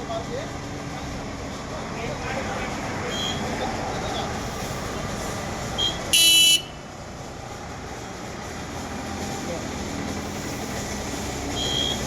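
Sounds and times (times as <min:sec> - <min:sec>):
engine and road noise: 0:00.0 - 0:12.0
vehicle horn toot: 0:06.1 - 0:06.8.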